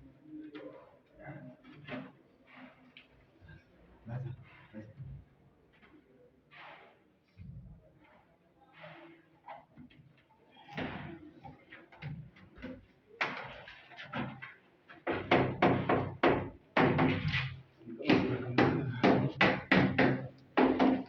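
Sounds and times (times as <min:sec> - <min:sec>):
sharp knocks: 0:15.0 - 0:21.0.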